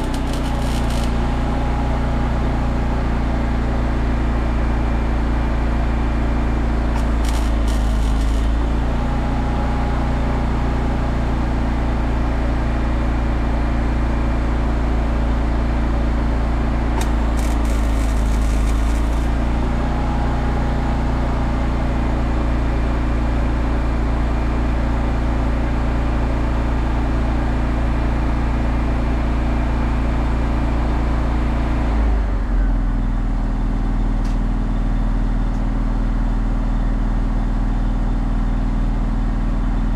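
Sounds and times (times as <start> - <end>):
arc welding crackling hiss: 0.0 - 1.4, 7.0 - 8.8, 17.0 - 19.5
welding machine engine running: 0.0 - 3.3, 6.1 - 10.9, 16.6 - 21.8.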